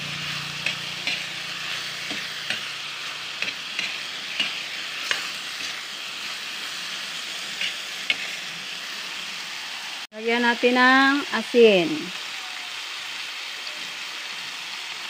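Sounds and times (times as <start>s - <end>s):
spatula scraping a wok: 0.0s - 9.3s
vegetables sizzling in hot oil: 0.0s - 15.0s.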